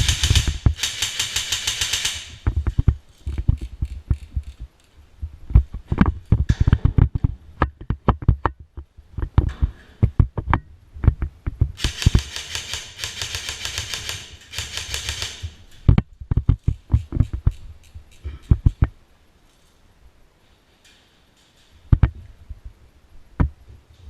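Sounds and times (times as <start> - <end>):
airsoft gun full-auto bursts: 0.0 - 2.5, 11.8 - 15.6
irregular thumps: 2.4 - 12.2, 15.8 - 19.0, 21.9 - 22.8.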